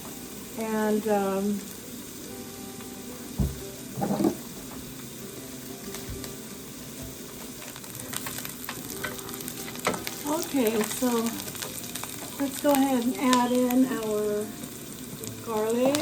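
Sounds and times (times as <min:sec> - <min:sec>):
onions sizzling in a pot: 0:00.0 - 0:16.0
knock: 0:03.4 - 0:04.4
light crackling: 0:07.2 - 0:16.0.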